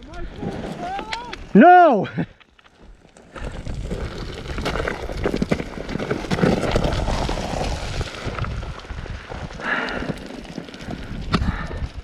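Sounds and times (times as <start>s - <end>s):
dirt bike crash tumbling: 3.4s - 11.8s.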